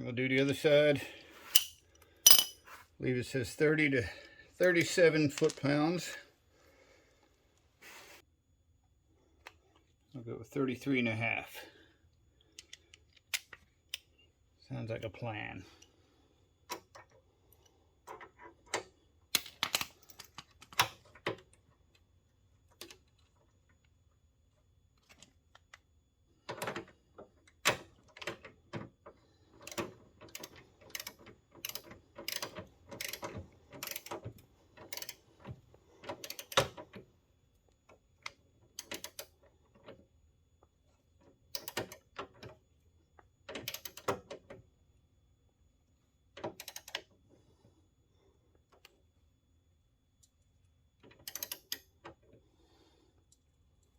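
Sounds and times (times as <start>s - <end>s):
torque wrench ratchet clicking: 34.9s - 35.2s.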